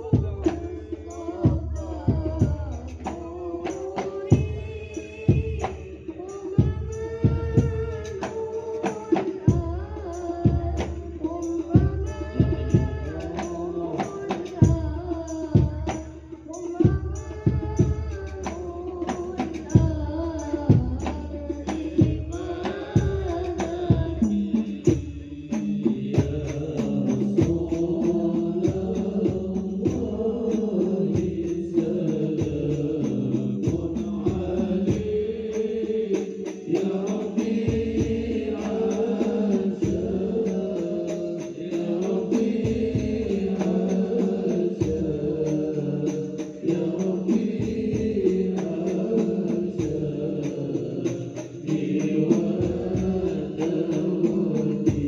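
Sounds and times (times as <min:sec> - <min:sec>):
devotional chant singing: 0:00.0 - 0:55.0
hand percussion strokes: 0:00.0 - 0:55.0
voices holding long notes: 0:21.8 - 0:55.0.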